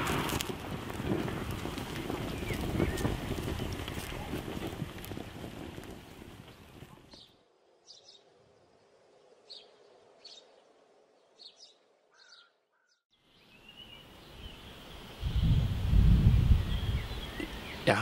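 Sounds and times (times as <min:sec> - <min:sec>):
birdsong: 0:01.6 - 0:04.6, 0:06.3 - 0:18.0.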